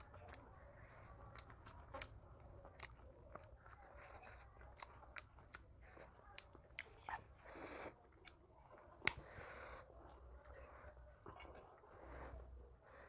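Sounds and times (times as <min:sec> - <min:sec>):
person chewing: 0:00.0 - 0:08.4
mouth clicks and crunches: 0:00.0 - 0:09.3.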